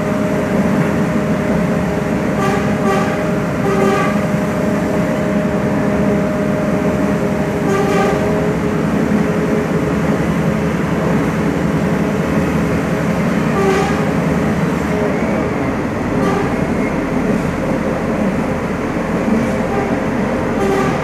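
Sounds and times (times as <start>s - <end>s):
passenger train running: 0.0s - 21.0s
train horn blasts: 2.3s - 4.4s, 7.6s - 8.5s, 13.4s - 14.2s, 16.0s - 17.0s, 19.3s - 21.0s.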